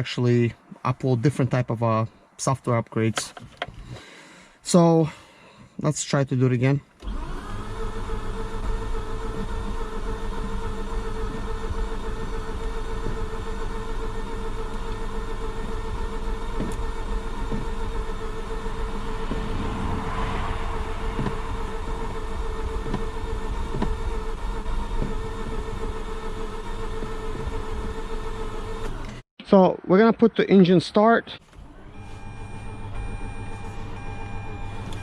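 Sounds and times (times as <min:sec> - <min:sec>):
starter motor cranking engine: 0:07.0 - 0:19.4.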